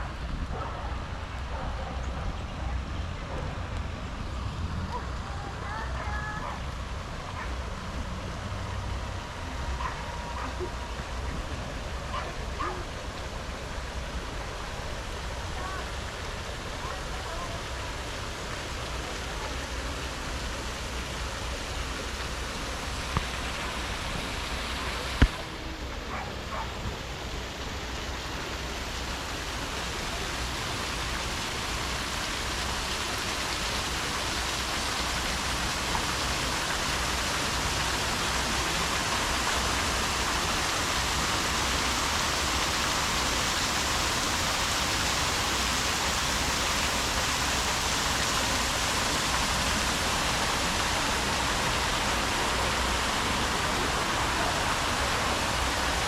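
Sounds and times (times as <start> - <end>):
rushing water: 0.0 - 56.0.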